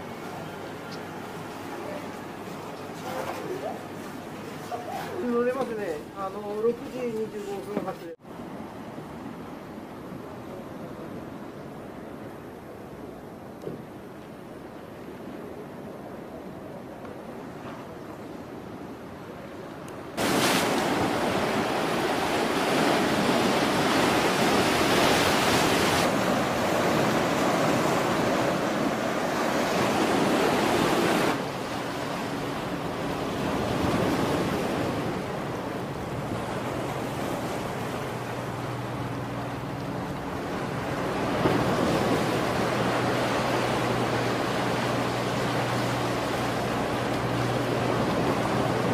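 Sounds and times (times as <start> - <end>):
sea noise: 0.0 - 48.9
wind: 0.0 - 48.9.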